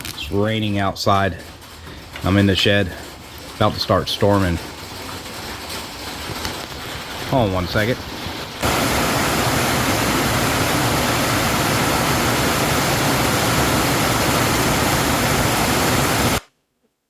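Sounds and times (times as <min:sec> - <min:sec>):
heavy rain on metal roof: 0:00.0 - 0:16.4.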